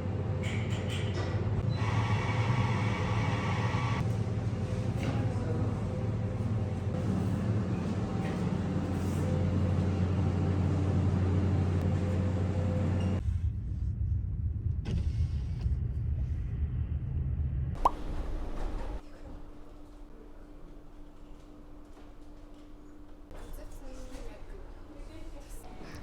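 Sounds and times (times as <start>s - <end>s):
low rumble: 13.0s - 19.0s.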